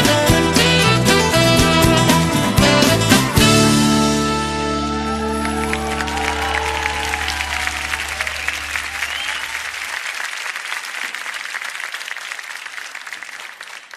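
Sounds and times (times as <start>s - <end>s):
audience applauding: 4.8s - 13.9s
short rising whistle: 5.1s - 9.8s.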